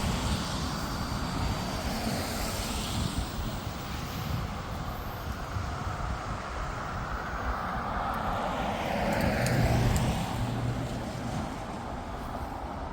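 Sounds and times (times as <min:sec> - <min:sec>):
vehicle passing: 0:08.3 - 0:11.8.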